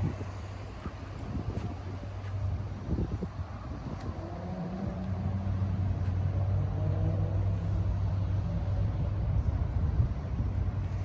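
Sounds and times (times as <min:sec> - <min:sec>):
engine humming: 0:00.0 - 0:11.0
wind noise: 0:00.0 - 0:11.0.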